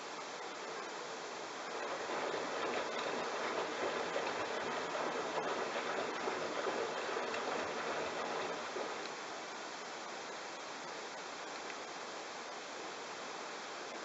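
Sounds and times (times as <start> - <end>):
washing machine sloshing: 1.5 - 9.3.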